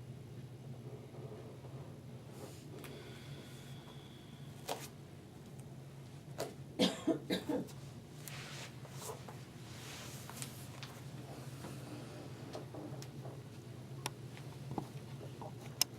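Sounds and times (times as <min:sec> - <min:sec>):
steady low hum: 0:00.0 - 0:15.9
person coughing: 0:06.8 - 0:07.7.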